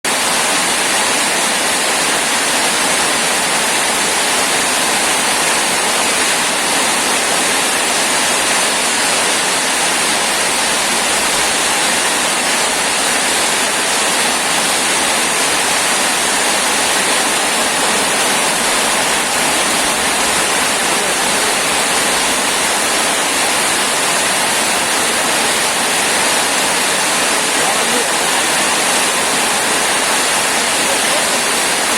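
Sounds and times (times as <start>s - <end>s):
heavy rain pouring: 0.0s - 31.9s.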